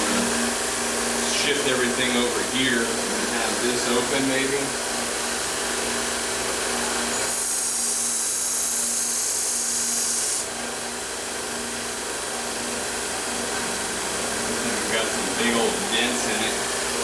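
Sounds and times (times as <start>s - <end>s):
belt grinder humming: 11.9s - 17.0s.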